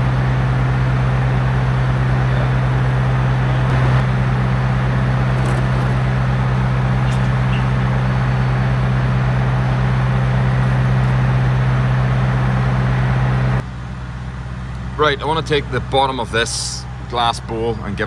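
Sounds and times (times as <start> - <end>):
engine droning steadily: 0.0 - 18.0.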